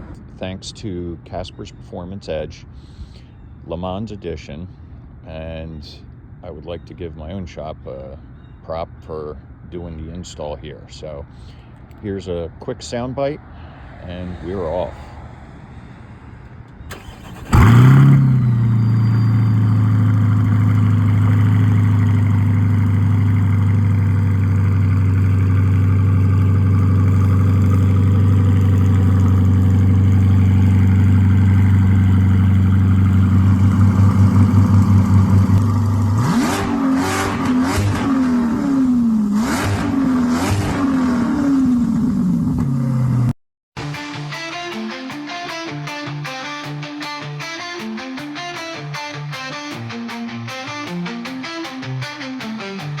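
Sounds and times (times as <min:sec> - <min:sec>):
car engine starting and idling: 0:14.2 - 0:43.3
car engine revving: 0:16.6 - 0:43.3.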